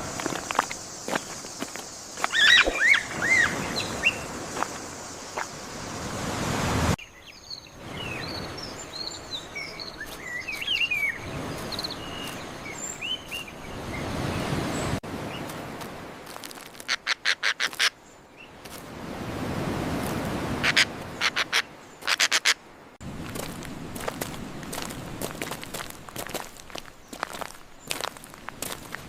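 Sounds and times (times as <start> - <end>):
small birds chirping: 0.0 - 6.1, 7.0 - 15.5, 24.7 - 29.0
outdoor background noise: 0.0 - 29.0.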